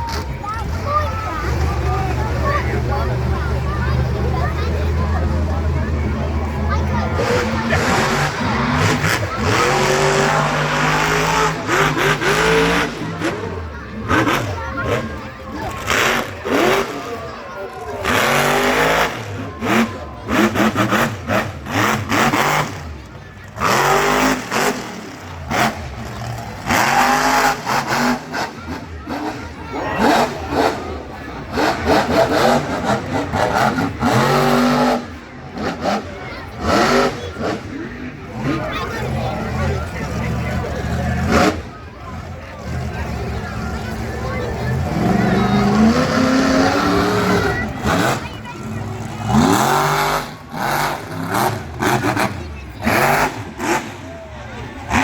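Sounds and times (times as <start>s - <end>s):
truck engine revving: 0.0s - 55.0s.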